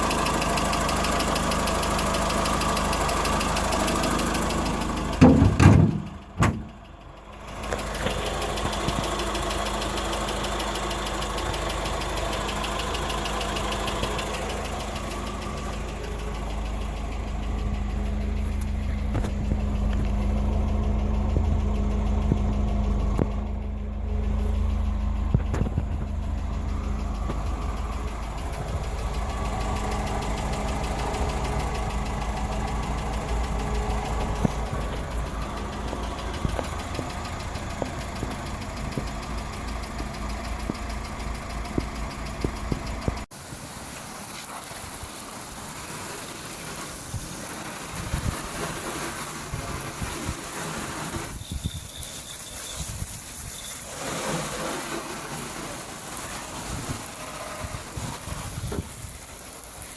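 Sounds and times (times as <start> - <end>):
car engine idling: 0.0 - 59.9
loud thumps: 5.2 - 6.8.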